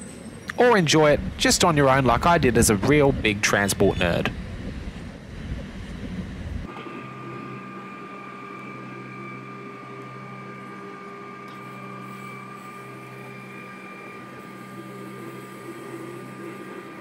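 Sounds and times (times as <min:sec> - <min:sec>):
electric train hum: 0:00.0 - 0:17.0
wind buffeting microphone: 0:00.9 - 0:06.7.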